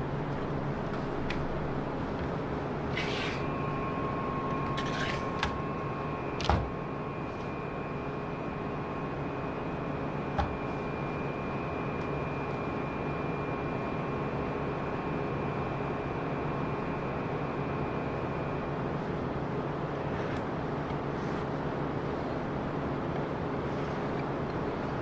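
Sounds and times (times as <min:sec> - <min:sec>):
mechanical hum and hiss: 0:00.0 - 0:25.0
faint high whine: 0:02.9 - 0:18.8.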